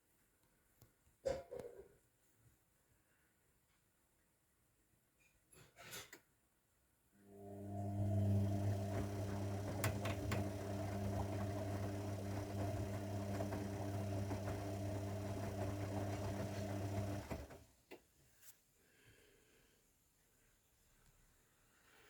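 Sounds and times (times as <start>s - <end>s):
washing machine electric hum: 7.3s - 17.7s.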